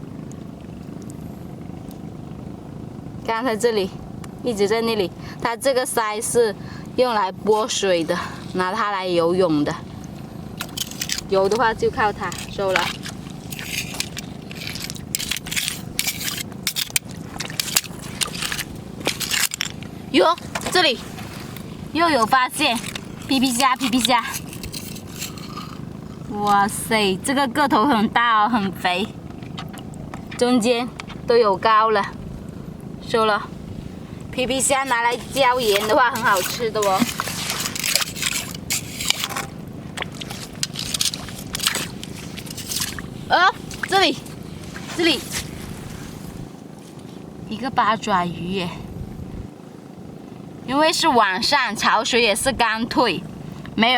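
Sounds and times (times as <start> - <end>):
crunching and scraping among rocks: 10.6 - 26.7, 34.7 - 47.2.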